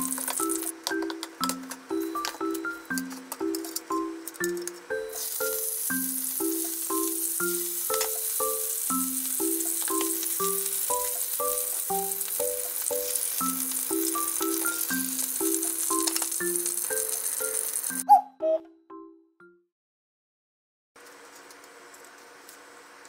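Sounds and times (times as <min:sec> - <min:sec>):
fish sizzling in frying pan: 0:00.0 - 0:00.8, 0:05.2 - 0:18.0
plucked background music: 0:00.0 - 0:19.2.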